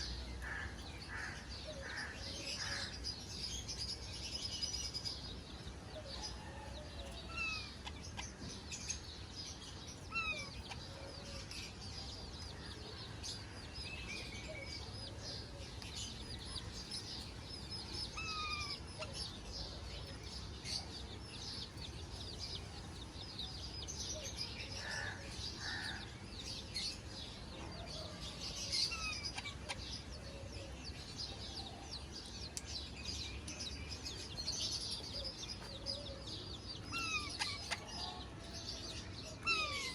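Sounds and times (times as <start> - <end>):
parrots chirping and chattering: 7.2 - 11.6, 15.4 - 19.4, 28.5 - 30.1, 36.8 - 38.6, 39.3 - 39.9.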